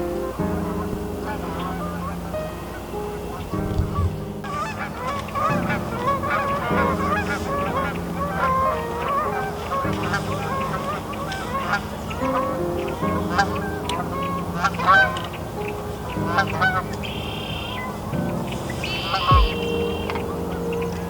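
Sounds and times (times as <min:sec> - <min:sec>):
geese honking: 0:04.4 - 0:15.4, 0:16.1 - 0:17.9, 0:18.5 - 0:20.9.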